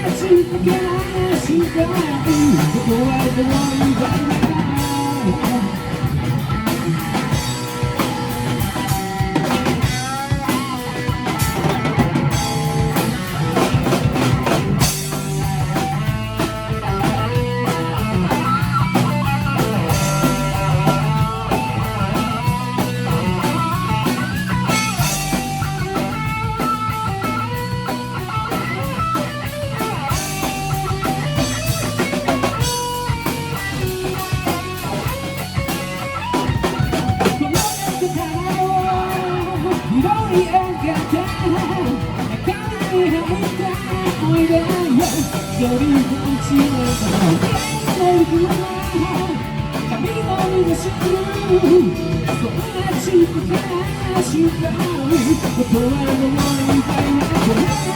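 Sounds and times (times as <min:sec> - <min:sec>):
guitar melody: 0:00.0 - 0:57.9
rock band instrumental: 0:00.0 - 0:57.9.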